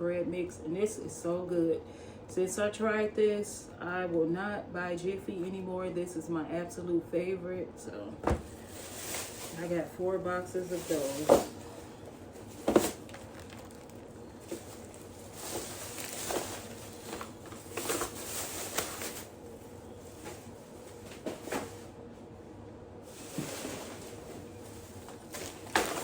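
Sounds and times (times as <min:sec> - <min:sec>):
plastic bags rustling: 0:08.2 - 0:21.9, 0:23.0 - 0:26.0.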